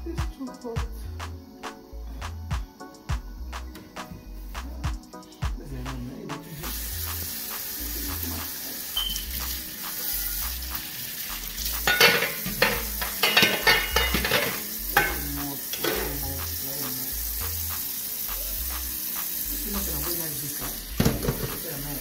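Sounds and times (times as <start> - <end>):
food sizzling in a pot: 6.4 - 22.0
metal spoon clattering in pot: 11.8 - 15.2.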